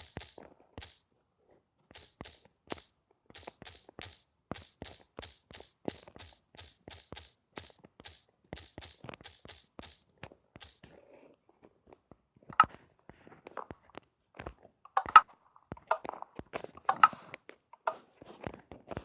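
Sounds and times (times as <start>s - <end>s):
sharp clicks and knocks: 12.6s - 12.8s, 14.4s - 18.0s.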